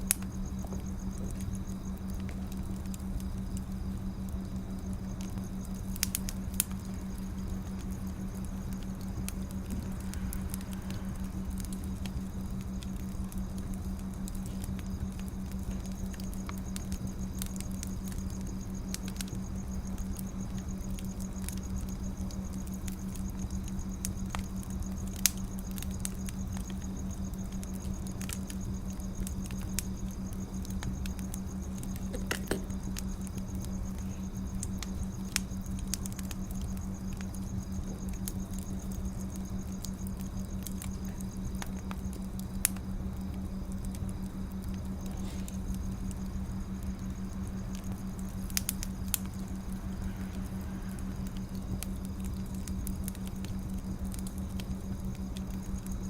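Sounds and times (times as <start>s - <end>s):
steady low hum: 0.0s - 56.0s
wood fire crackling: 0.0s - 56.0s.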